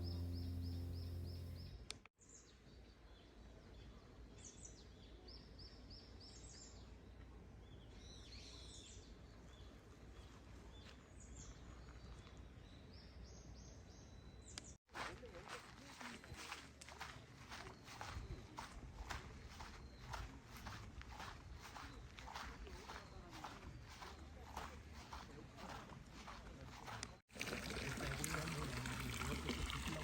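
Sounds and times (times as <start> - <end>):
background music: 0.0 - 1.8
bird chirping: 0.0 - 1.9
faint outdoor ambience: 15.4 - 30.0.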